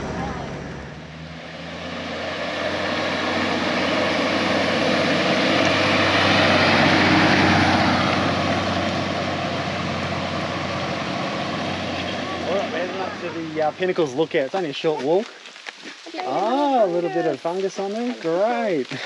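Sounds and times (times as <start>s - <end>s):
vehicle engine and tyre noise: 0.0s - 19.0s.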